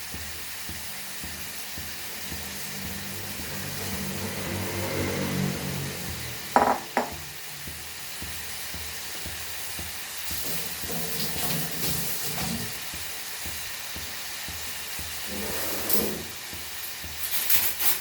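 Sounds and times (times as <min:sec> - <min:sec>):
chicken sizzling in a pan: 0:00.0 - 0:18.0
loud knocks: 0:06.5 - 0:07.3.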